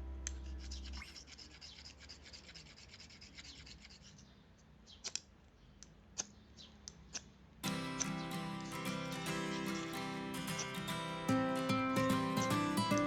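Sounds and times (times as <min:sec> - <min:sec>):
sharp clicks: 0:05.0 - 0:10.9.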